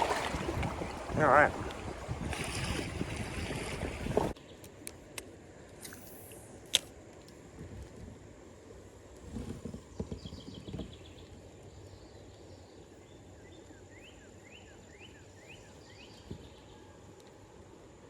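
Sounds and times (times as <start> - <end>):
low knocks and rustles: 9.2 - 11.2
birds singing: 9.9 - 17.0.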